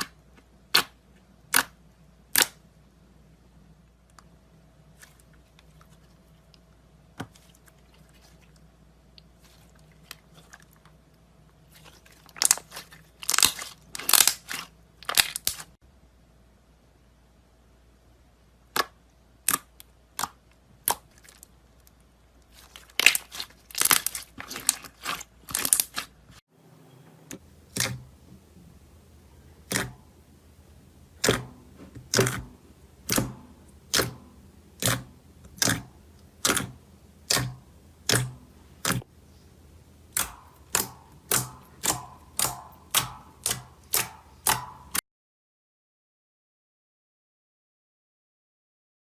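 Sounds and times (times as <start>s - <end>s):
crisp crunching and crackling: 11.7s - 15.8s, 20.2s - 26.4s.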